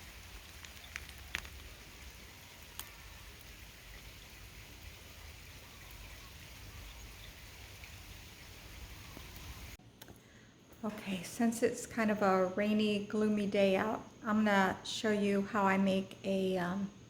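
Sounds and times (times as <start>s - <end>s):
sharp water drips: 0.0s - 9.8s
steady rain falling: 0.0s - 9.8s.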